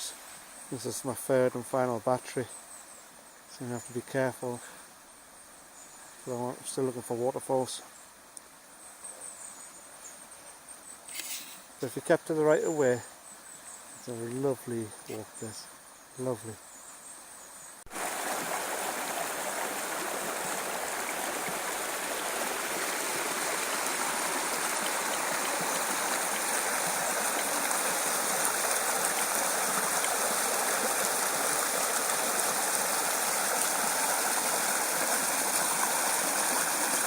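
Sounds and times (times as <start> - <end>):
stream rushing over stones: 17.9 - 37.0.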